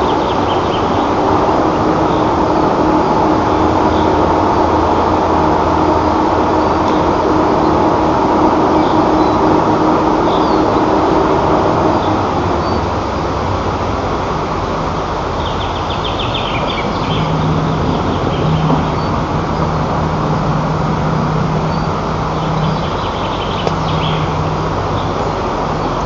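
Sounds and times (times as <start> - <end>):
loud steady rumbling: 0.0 - 26.0
low hum: 0.0 - 26.0
bird calls: 21.6 - 26.0.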